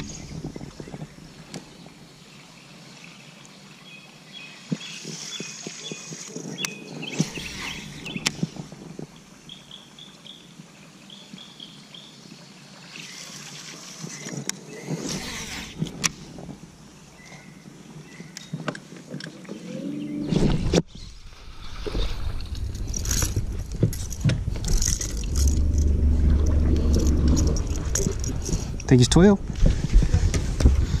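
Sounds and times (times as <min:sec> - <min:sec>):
rustling: 0:20.4 - 0:31.0.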